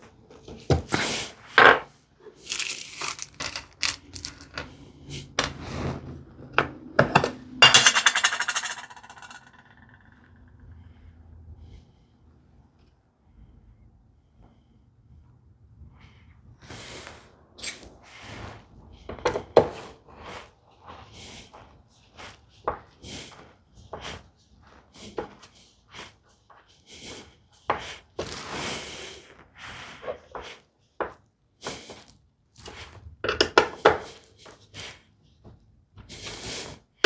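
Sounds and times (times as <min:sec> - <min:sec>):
tools knocking on workbench: 0:06.6 - 0:09.5.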